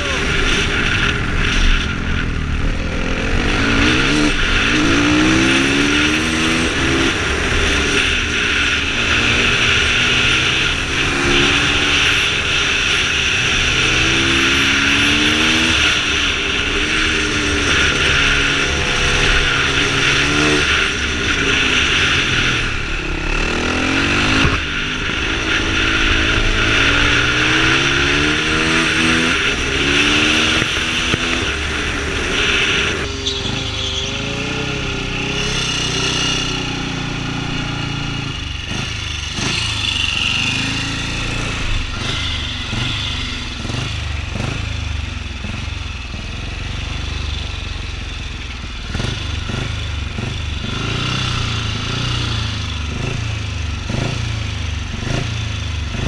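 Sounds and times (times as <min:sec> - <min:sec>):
wind rushing over microphone: 0:00.0 - 0:35.6
motorcycle engine accelerating: 0:00.0 - 0:56.0.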